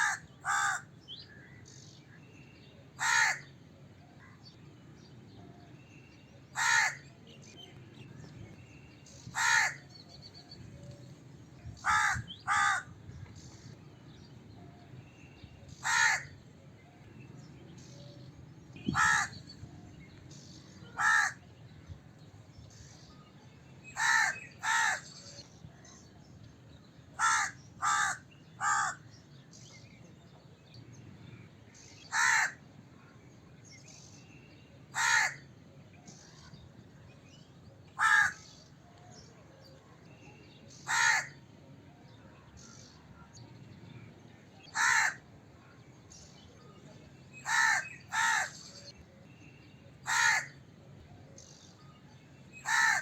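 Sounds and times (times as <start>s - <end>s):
crow cawing: 0.0s - 0.9s, 3.0s - 3.5s, 6.6s - 7.0s, 9.4s - 9.8s, 11.8s - 13.0s, 15.8s - 16.4s, 18.9s - 19.4s, 21.0s - 21.4s, 24.0s - 25.0s, 27.2s - 29.0s, 32.1s - 32.6s, 35.0s - 35.4s, 38.0s - 38.5s, 40.9s - 41.4s, 44.7s - 45.2s, 47.4s - 48.6s, 50.1s - 50.6s, 52.6s - 53.0s.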